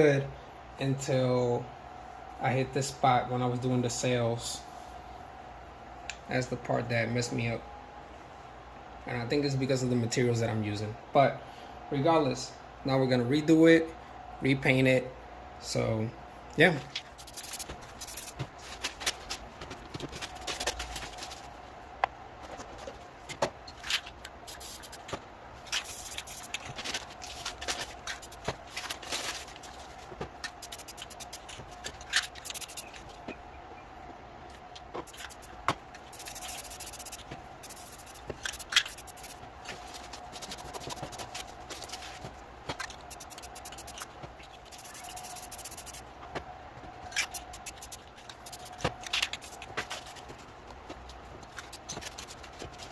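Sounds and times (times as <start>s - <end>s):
faint steady hum: 0.0s - 52.9s
brush rubbing on canvas: 17.1s - 19.0s, 24.4s - 25.1s, 25.8s - 28.9s, 30.5s - 33.0s, 35.0s - 42.2s, 42.8s - 46.0s, 47.2s - 50.3s
tools clicking and tapping: 30.4s - 33.1s, 35.0s - 39.4s, 40.4s - 41.4s, 42.7s - 46.0s, 47.1s - 49.9s.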